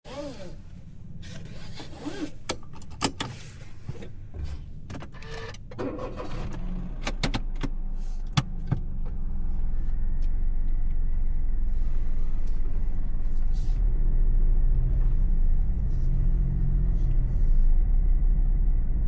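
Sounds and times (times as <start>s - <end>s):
car engine and road noise: 0.0s - 19.0s
clicks and knocks in car cabin: 2.4s - 5.8s, 7.0s - 9.2s.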